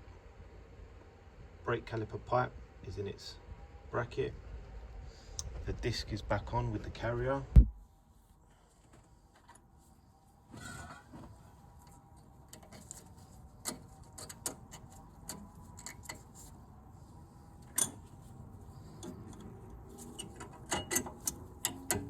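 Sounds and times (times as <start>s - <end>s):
metallic clicks of hand tools: 19.0s - 22.0s.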